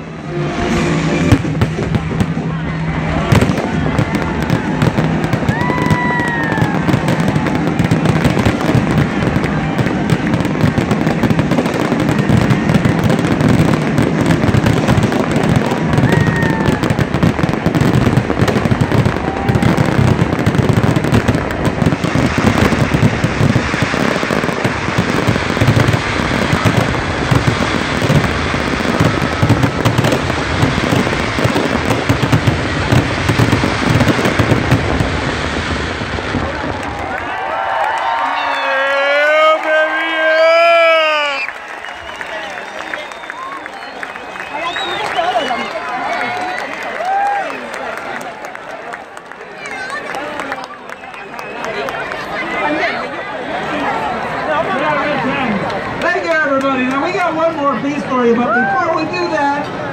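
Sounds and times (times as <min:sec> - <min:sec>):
fireworks bursting and booming: 0:00.0 - 0:38.2
firework whistles: 0:41.2 - 0:45.8.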